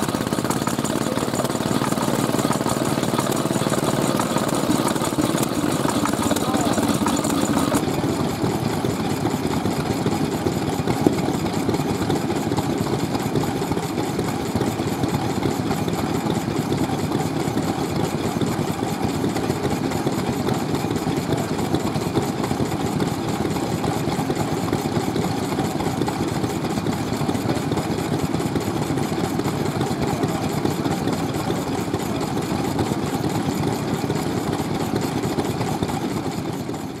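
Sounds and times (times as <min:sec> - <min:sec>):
stationary engines running: 0:00.0 - 0:37.0.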